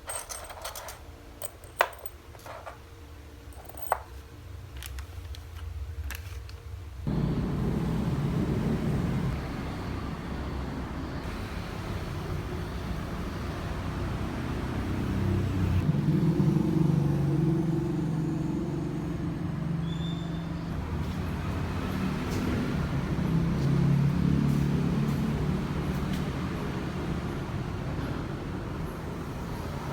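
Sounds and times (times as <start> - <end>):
road noise: 7.0 - 29.9
vehicle engine running: 7.1 - 19.4.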